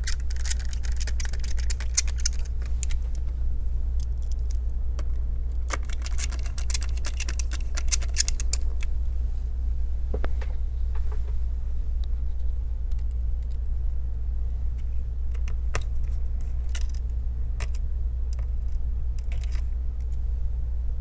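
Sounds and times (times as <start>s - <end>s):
clicks and clinks of laptop parts: 0.0s - 3.3s, 4.0s - 8.9s, 15.3s - 20.2s
steady low hum: 0.0s - 21.0s.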